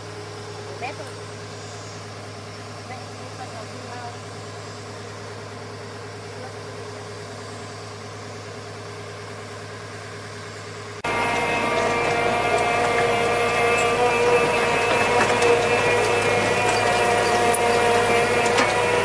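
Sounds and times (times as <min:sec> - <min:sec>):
machine drone with held pitches: 0:00.0 - 0:19.0
motor running: 0:10.5 - 0:19.0.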